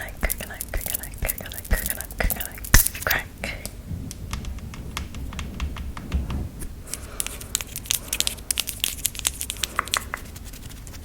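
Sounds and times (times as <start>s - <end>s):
small clicks and crinkles: 0.2s - 11.0s
soft low thuds: 2.7s - 6.9s.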